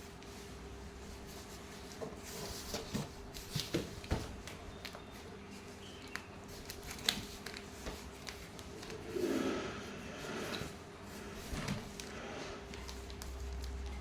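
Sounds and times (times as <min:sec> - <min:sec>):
rustling scrape: 0:06.5 - 0:13.4.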